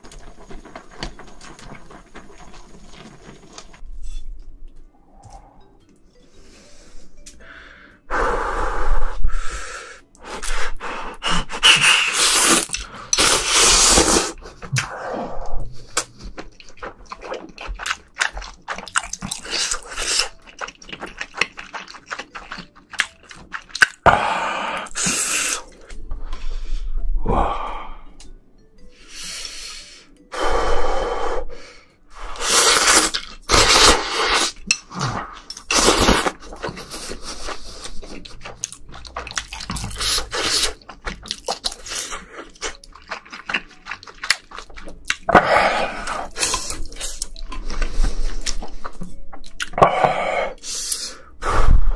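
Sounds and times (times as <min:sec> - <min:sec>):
close chewing and mouth noise: 0:00.0 - 0:03.8, 0:10.1 - 0:24.1, 0:32.3 - 0:49.9.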